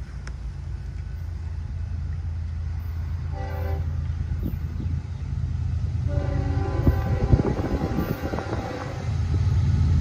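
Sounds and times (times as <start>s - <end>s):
diesel locomotives rumbling: 0.0s - 10.0s
train horn blast: 3.2s - 4.0s, 6.0s - 9.2s.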